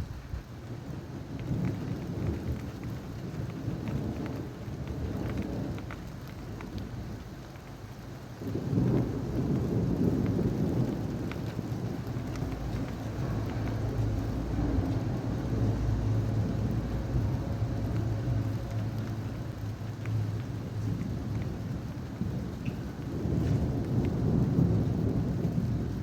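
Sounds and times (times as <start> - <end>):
rain falling: 0.0 - 26.0
raindrop ticks: 0.4 - 26.0
rolling thunder: 8.1 - 26.0.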